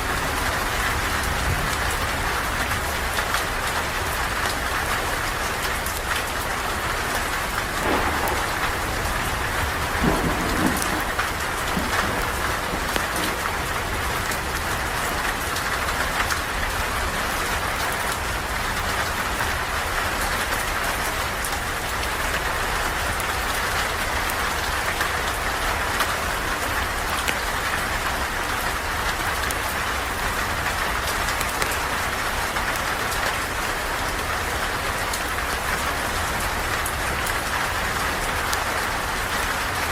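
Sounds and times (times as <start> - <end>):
heavy rain falling: 0.0 - 39.9
campfire crackling and popping: 7.6 - 14.4
low rumble: 7.7 - 13.5.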